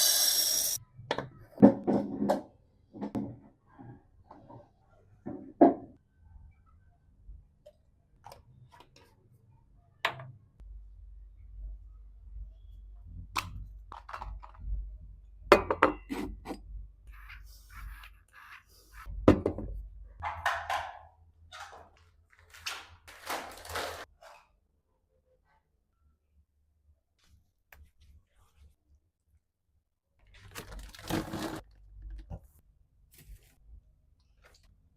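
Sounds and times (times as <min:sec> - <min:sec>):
household items knocking and clinking: 0:19.3 - 0:21.1.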